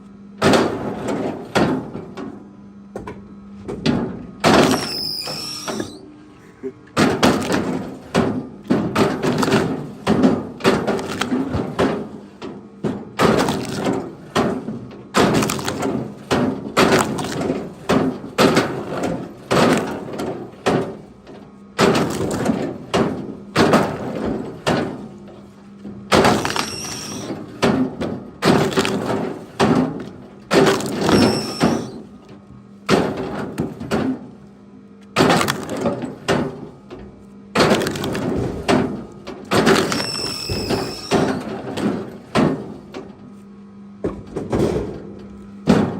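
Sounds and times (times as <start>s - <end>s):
firewood pieces knocking together: 28.4s - 31.9s, 35.2s - 36.5s, 37.6s - 41.6s.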